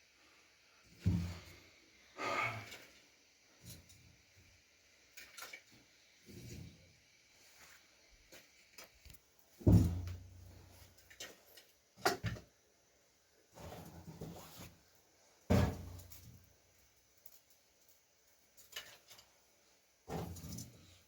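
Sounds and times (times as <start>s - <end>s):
heavy thump: 9.6s - 10.2s.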